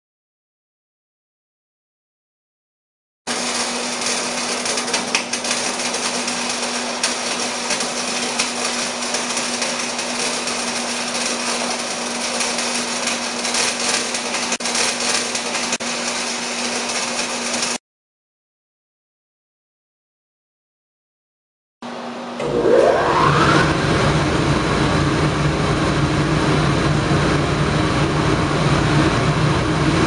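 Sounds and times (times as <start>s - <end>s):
machine humming: 3.3s - 17.8s, 21.8s - 30.0s.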